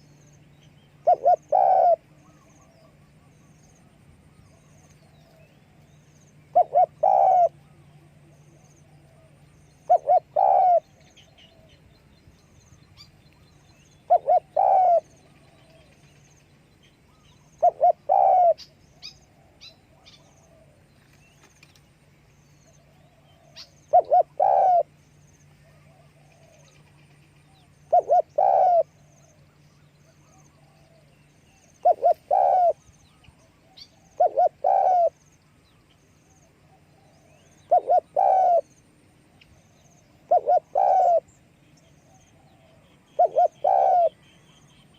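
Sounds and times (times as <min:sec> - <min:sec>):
low steady hum: 0:00.0 - 0:44.9
dove cooing: 0:01.0 - 0:03.3, 0:06.4 - 0:11.8, 0:14.0 - 0:16.2, 0:17.1 - 0:20.8, 0:22.7 - 0:24.9, 0:25.6 - 0:26.8, 0:27.4 - 0:35.2, 0:36.6 - 0:38.8, 0:39.7 - 0:41.4, 0:42.0 - 0:44.4
faint high bird chirps: 0:39.4 - 0:44.9.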